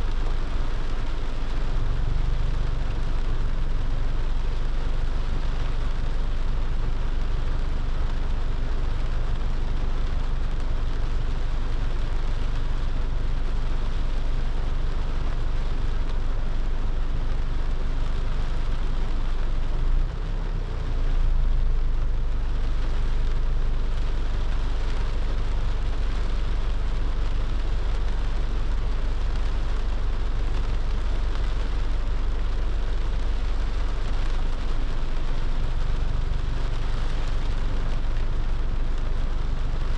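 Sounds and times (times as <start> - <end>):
car engine and road rumble: 0.0 - 39.9
rain hiss: 0.0 - 39.9
wet tyres hissing: 18.2 - 39.9.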